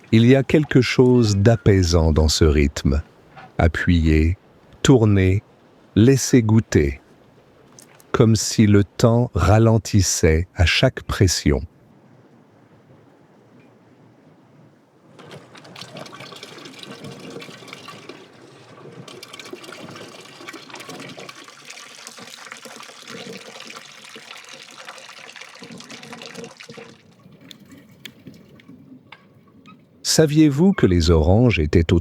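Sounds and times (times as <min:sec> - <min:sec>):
juice pouring in a stream: 0:15.1 - 0:28.4.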